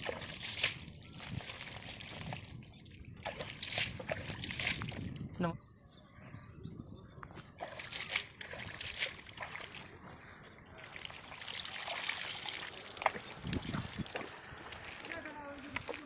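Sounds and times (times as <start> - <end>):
water trickling and splashing: 0.0 - 5.5, 7.4 - 16.0
low water slosh: 7.5 - 16.0.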